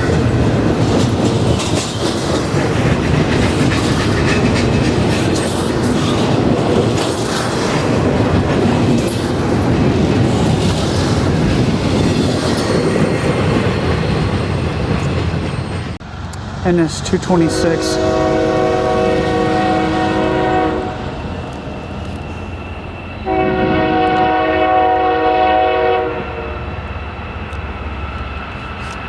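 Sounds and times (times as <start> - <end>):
wheels clicking over rail joints: 0.0 - 16.6
wheels squealing: 0.0 - 16.6, 19.2 - 24.4
freight train rumbling past: 0.0 - 29.0.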